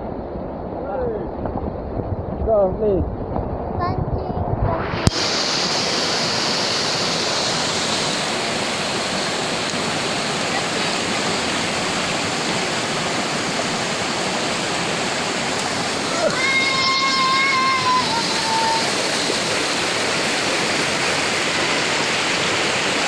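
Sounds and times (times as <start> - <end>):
river water rushing over rocks: 5.0 - 23.0.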